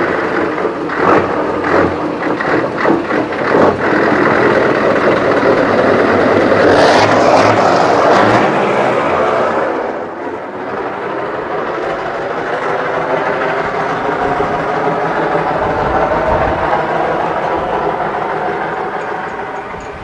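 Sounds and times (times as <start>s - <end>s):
knocks and rattles: 0.0s - 6.7s
diesel engine low hum: 0.0s - 20.0s.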